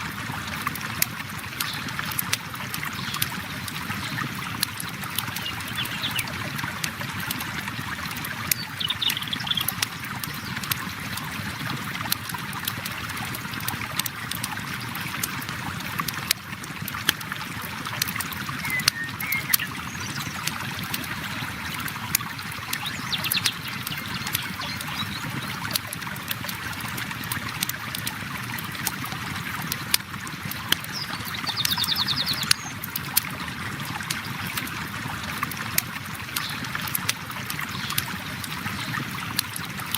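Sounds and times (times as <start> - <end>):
bird chirps and trill: 18.6 - 20.4.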